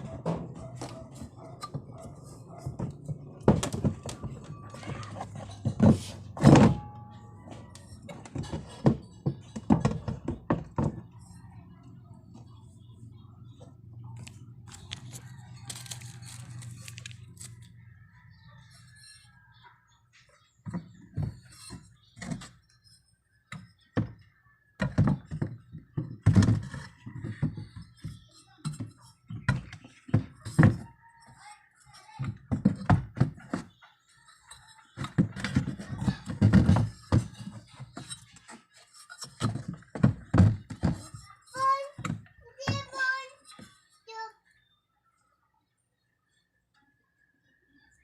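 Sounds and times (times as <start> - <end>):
knocks and thuds: 2.6 - 7.0.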